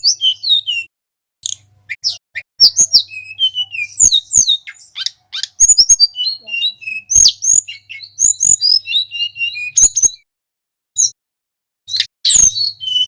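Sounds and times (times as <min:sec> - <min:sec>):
songbird singing: 0:00.0 - 0:10.3, 0:11.9 - 0:13.0.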